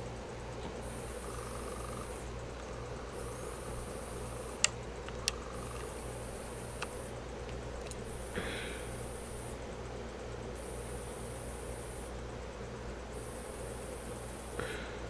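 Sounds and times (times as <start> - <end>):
ceiling fan humming: 0.0 - 15.0
faint high whine: 0.0 - 15.0
sharp clicks: 4.5 - 6.0, 6.6 - 8.0.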